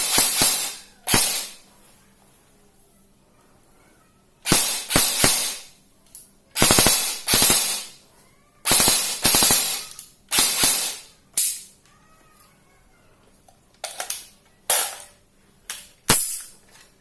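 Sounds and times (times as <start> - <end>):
airsoft gun automatic bursts: 0.0 - 1.6, 4.5 - 5.7, 6.6 - 8.0, 8.7 - 11.1.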